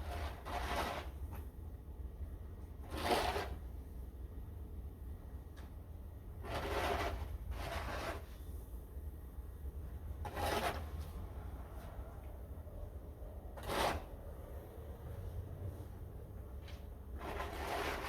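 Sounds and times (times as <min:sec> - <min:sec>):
snow shovel scraping snow: 0:00.0 - 0:01.2, 0:02.8 - 0:03.6, 0:06.4 - 0:08.4, 0:10.2 - 0:11.0, 0:13.6 - 0:14.1, 0:17.2 - 0:18.0.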